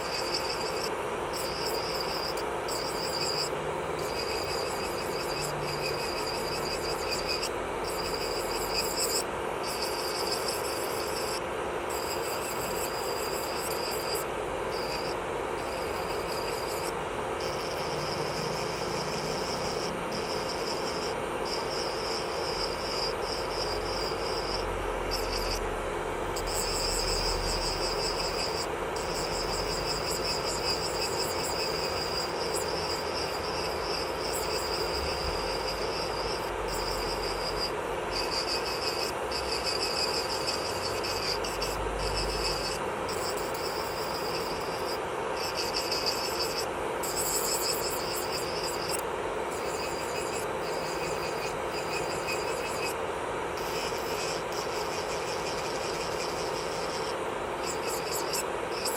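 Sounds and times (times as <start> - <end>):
electric nail drill whining: 0.0 - 58.9.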